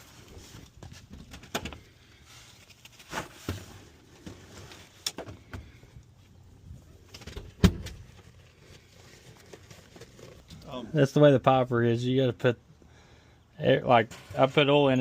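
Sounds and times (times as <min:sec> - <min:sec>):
knocks and clunks of objects: 0:00.5 - 0:01.9, 0:03.1 - 0:05.9, 0:07.1 - 0:08.4.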